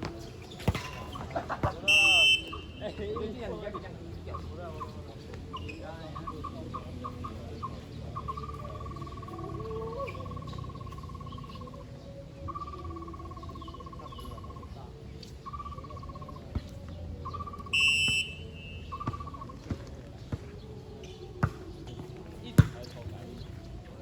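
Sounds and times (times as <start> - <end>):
whistle blowing: 1.8 - 3.0, 17.3 - 19.2
high warbling call: 17.7 - 19.0.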